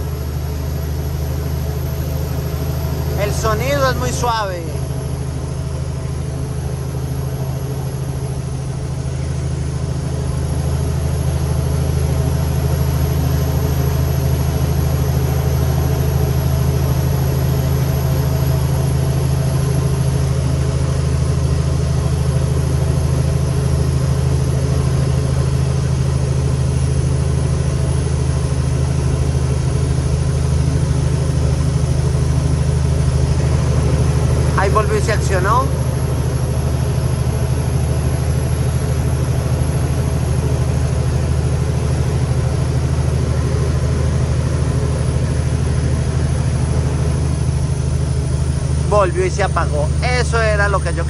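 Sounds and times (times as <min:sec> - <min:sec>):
thin high whine: 0:00.0 - 0:20.9
diesel truck engine droning: 0:00.0 - 0:51.0.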